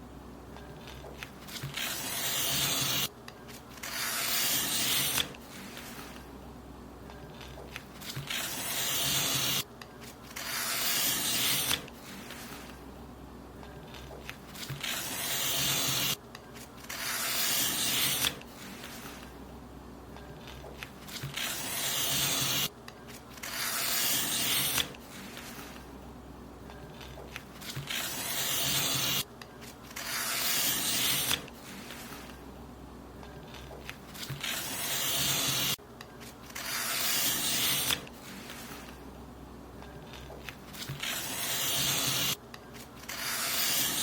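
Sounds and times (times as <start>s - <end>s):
paper being cut: 0.8s - 6.2s, 7.4s - 12.7s, 13.9s - 19.3s, 20.4s - 25.8s, 27.0s - 32.4s, 33.5s - 39.0s, 40.1s - 44.0s.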